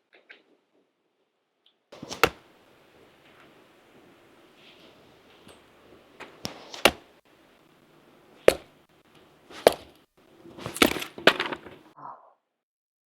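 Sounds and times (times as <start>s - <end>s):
firewood cracking: 2.0s - 3.6s, 4.8s - 7.6s, 8.3s - 12.0s.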